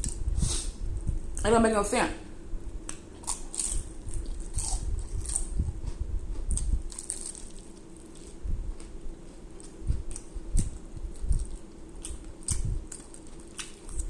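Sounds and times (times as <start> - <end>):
crunching fried chicken: 2.9 - 14.0.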